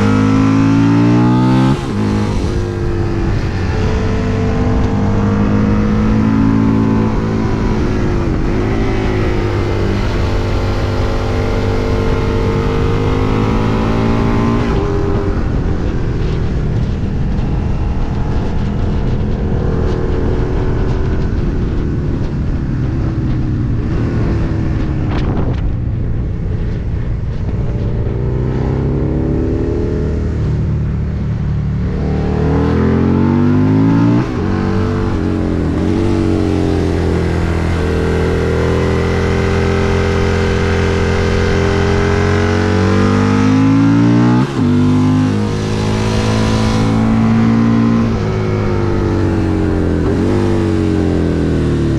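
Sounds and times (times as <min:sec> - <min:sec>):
motorcycle engine revving: 0:00.0 - 0:51.9
wind rush on microphone: 0:00.0 - 0:51.9.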